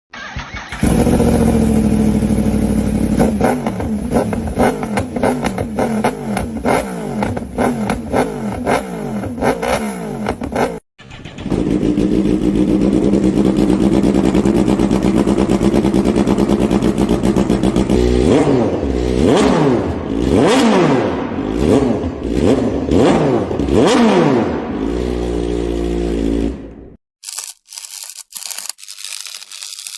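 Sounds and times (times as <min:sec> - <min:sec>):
motorcycle engine revving: 0:00.2 - 0:27.0
motorcycle engine idling: 0:00.7 - 0:05.2, 0:11.0 - 0:18.2.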